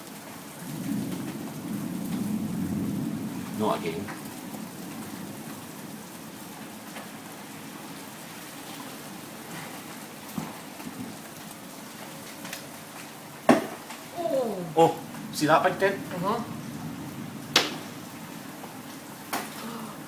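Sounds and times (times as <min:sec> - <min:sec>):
hail and rain falling: 0:00.0 - 0:20.0
hailstones knocking on hard surfaces: 0:17.5 - 0:18.0, 0:18.6 - 0:19.7.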